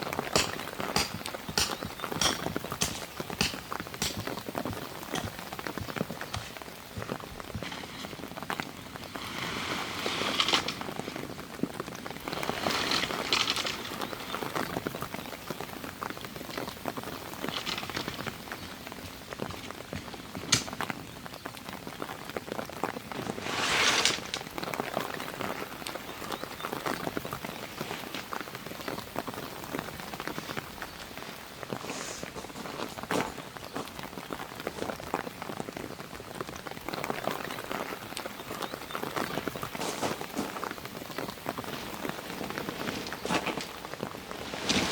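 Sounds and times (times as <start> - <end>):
rain pattering: 0.0 - 44.9
sharp tap: 0.4 - 4.4.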